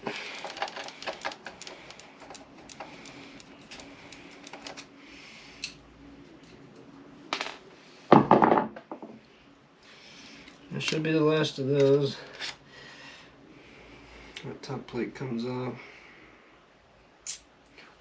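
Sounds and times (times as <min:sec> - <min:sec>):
metal tools clicking and rattling: 0:00.0 - 0:04.9.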